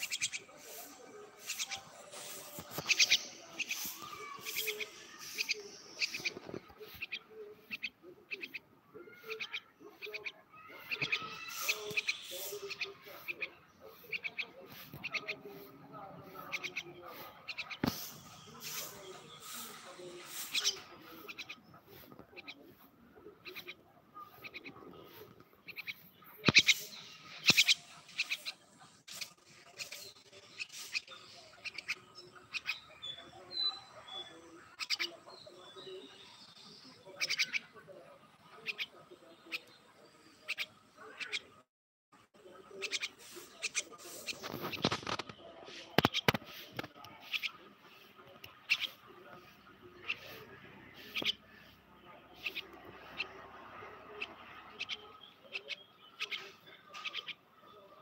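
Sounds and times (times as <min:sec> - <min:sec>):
bird sharp high chirps: 0:00.0 - 0:00.5, 0:25.7 - 0:37.7.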